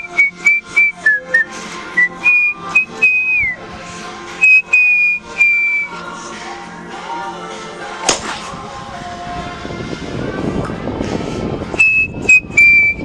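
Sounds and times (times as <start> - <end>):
person whistling a tune: 0.0 - 3.6, 4.4 - 6.0, 11.8 - 13.0.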